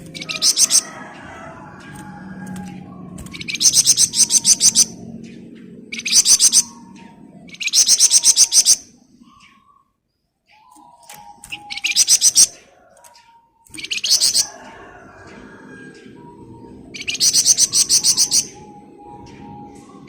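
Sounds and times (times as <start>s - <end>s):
songbird buzzy rattling trills: 0.0s - 20.0s.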